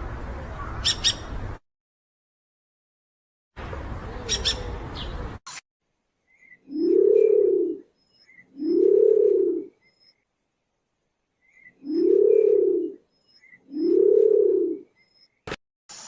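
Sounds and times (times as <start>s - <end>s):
faint high bird chirps: 0.6s - 1.3s, 4.2s - 5.2s, 6.2s - 8.9s, 9.7s - 10.3s, 11.4s - 14.0s, 14.8s - 15.5s
animal low hooting call: 6.7s - 7.9s, 8.6s - 9.8s, 11.8s - 13.0s.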